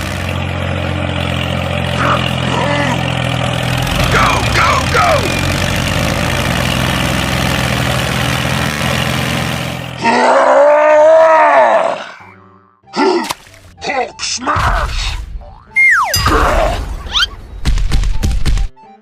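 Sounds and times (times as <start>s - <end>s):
comic swooping sound effect: 15.7s - 17.4s.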